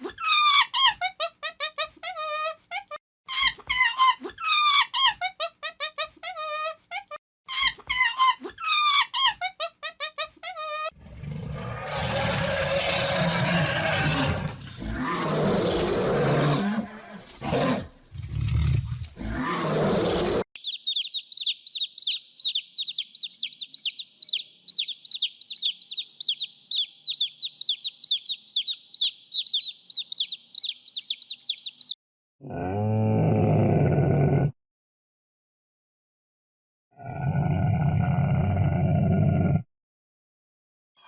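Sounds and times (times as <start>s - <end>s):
large animal roaring calls: 11.0s - 20.4s, 32.4s - 34.5s, 37.0s - 39.6s
bird chirping high: 20.6s - 32.0s.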